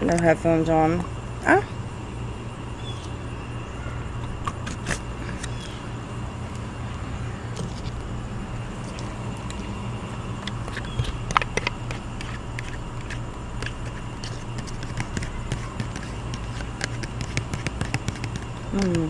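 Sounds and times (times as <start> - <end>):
air conditioner humming: 0.0 - 19.0
mouth clicks and smacks: 4.2 - 5.6.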